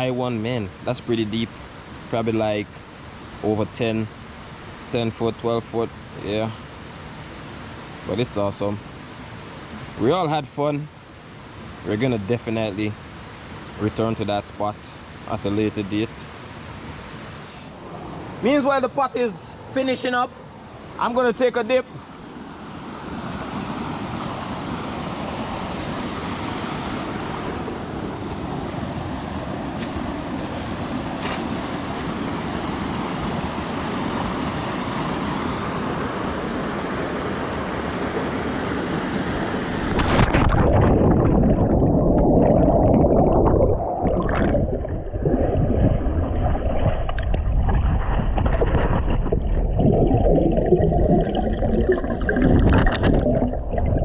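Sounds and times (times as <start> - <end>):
river water rushing: 16.4 - 41.6
underwater rumble: 39.9 - 54.0.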